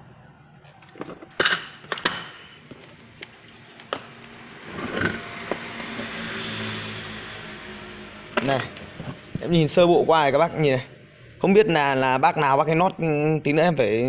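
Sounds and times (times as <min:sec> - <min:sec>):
steady mechanical noise: 0:00.0 - 0:12.5
tools clicking and knocking: 0:00.8 - 0:05.2.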